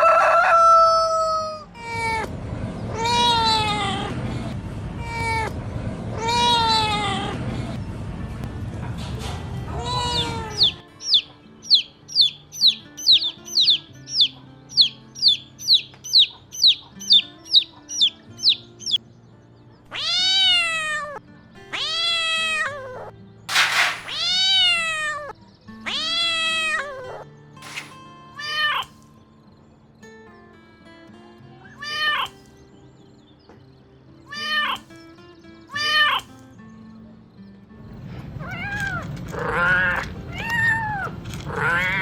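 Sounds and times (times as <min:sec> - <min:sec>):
soft background music: 0:00.0 - 0:42.0
cat meowing: 0:19.9 - 0:23.1, 0:24.0 - 0:29.0, 0:31.6 - 0:32.4, 0:34.3 - 0:34.9, 0:35.7 - 0:36.3, 0:38.4 - 0:42.0
short high falling squeaks: 0:23.5 - 0:24.4.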